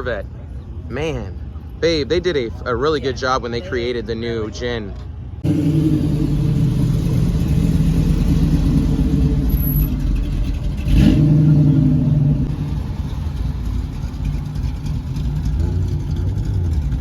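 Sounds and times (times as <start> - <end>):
car engine running and revving: 5.4 - 17.0.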